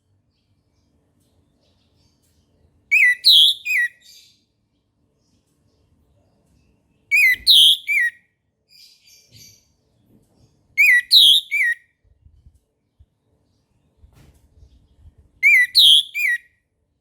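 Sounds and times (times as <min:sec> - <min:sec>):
thrush whistled phrases: 0:15.4 - 0:16.4.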